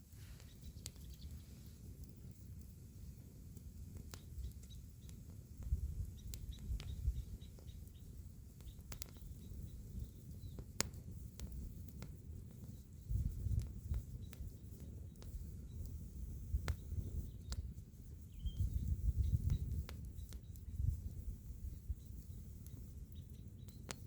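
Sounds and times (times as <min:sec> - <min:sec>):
low fire rumble: 0:00.0 - 0:24.0
wood fire crackling and popping: 0:00.0 - 0:24.0
faint bird chirps: 0:00.1 - 0:01.8, 0:04.2 - 0:05.2, 0:06.0 - 0:10.6, 0:14.0 - 0:24.0.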